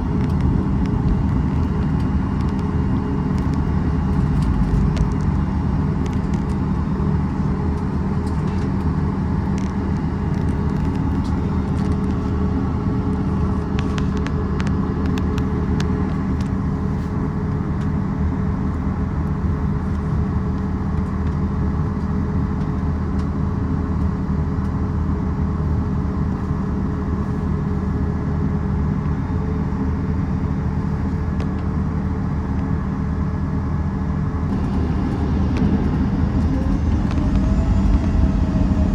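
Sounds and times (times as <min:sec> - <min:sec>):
low mechanical rumble: 0:00.0 - 0:38.9
faint steady hum: 0:22.8 - 0:38.9.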